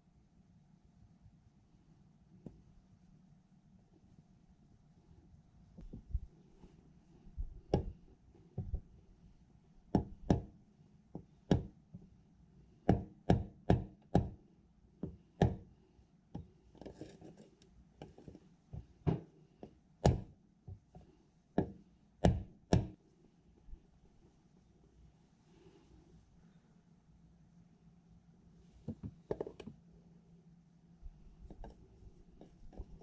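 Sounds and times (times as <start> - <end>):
hammer tapping: 12.8 - 14.4, 21.6 - 23.0.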